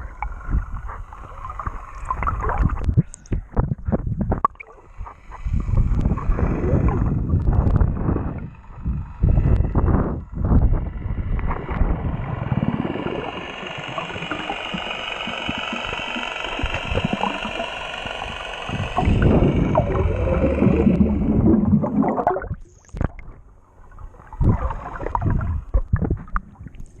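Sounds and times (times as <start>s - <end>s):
water splashing: 0.0s - 2.9s, 11.4s - 27.0s
steady high whine: 0.0s - 26.4s
water rushing around boat: 0.0s - 27.0s.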